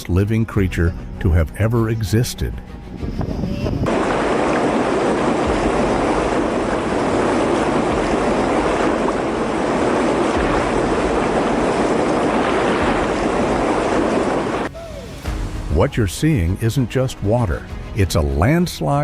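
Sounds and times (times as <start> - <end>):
mud flow rushing: 3.8 - 19.0.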